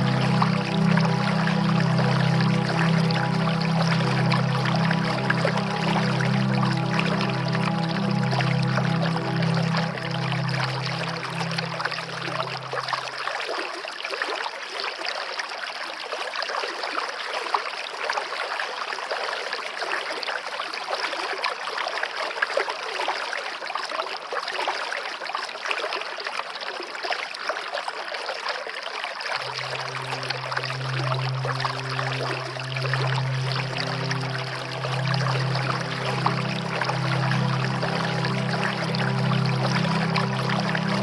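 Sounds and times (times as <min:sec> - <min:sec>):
soft music with low tones: 0:00.0 - 0:13.5, 0:29.3 - 0:41.0
stream water trickling: 0:00.0 - 0:41.0.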